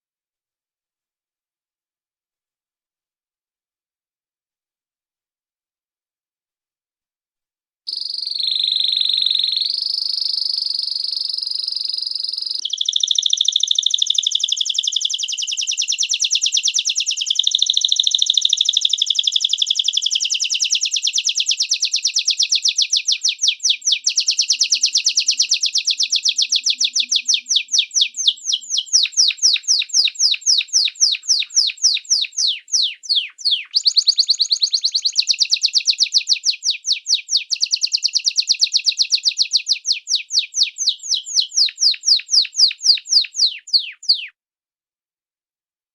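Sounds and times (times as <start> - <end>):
songbird trilling song: 7.9 - 44.4.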